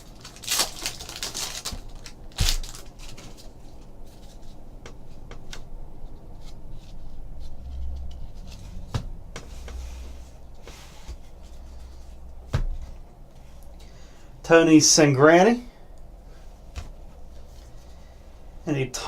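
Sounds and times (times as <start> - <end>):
foil wrapper tearing: 0.0 - 3.4
cards clicking and rustling: 0.0 - 3.8.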